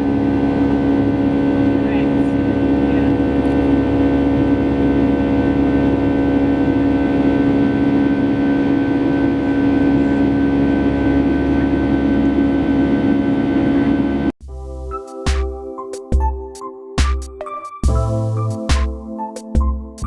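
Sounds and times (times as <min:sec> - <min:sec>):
jet engine drone in cabin: 0:00.0 - 0:14.4.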